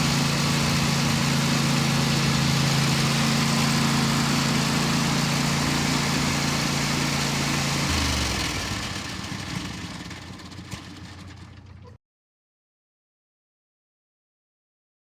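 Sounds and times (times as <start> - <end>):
lawn tractor engine running: 0.0 - 12.0.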